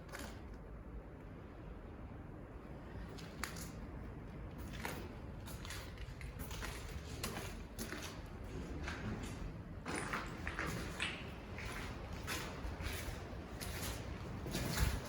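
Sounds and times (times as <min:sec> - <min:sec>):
footsteps on gritty ground: 0:04.5 - 0:15.0
wind buffeting microphone: 0:08.3 - 0:15.0.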